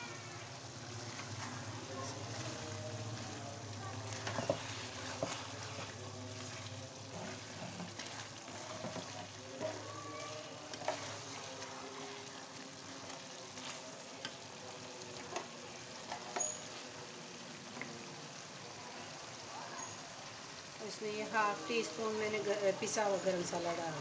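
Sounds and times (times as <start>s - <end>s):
food sizzling in a pan: 0.0s - 24.0s
spatula scraping and knocking pan: 1.0s - 10.0s, 10.7s - 14.4s.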